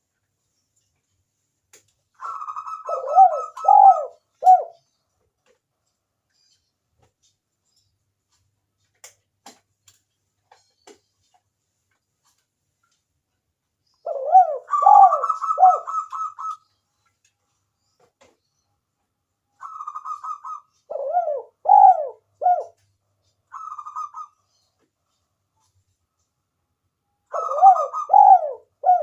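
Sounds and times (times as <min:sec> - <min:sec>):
dove cooing: 0:02.2 - 0:04.8, 0:14.0 - 0:16.6, 0:19.6 - 0:22.8, 0:23.5 - 0:24.4, 0:27.3 - 0:29.0.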